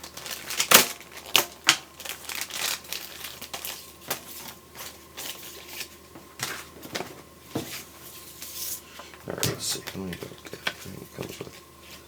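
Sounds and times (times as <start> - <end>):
packaging crinkling: 0.0 - 6.9.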